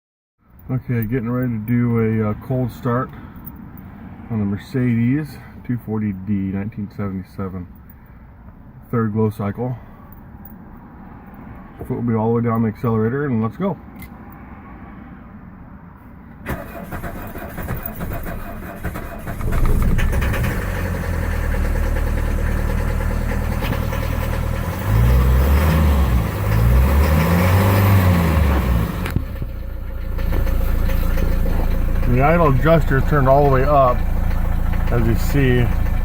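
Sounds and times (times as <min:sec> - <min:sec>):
diesel engine running: 0:16.4 - 0:36.0
starter motor cranking: 0:16.5 - 0:25.8.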